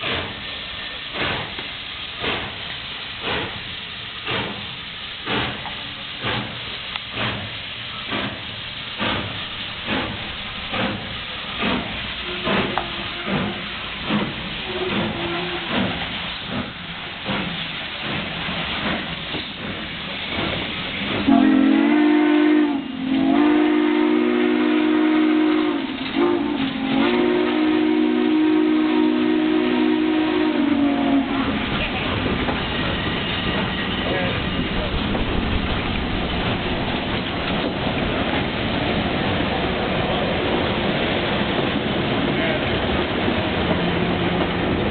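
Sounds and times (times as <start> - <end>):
steam locomotive chuffing: 0.0 - 44.9
steam whistle blowing: 12.2 - 13.7, 14.6 - 15.8, 21.3 - 31.6.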